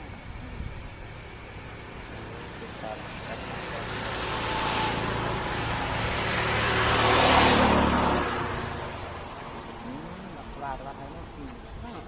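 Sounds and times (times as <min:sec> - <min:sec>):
vehicle passing by: 0:01.8 - 0:11.5.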